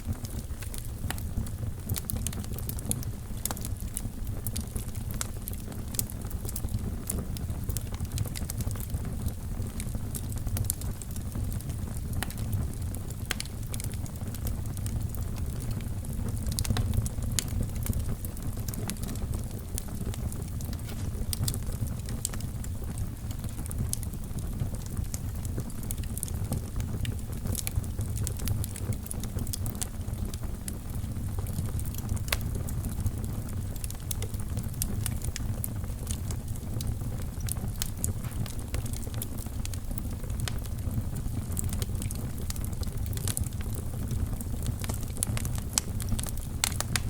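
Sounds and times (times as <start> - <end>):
fire crackling in fireplace: 0.0 - 47.0.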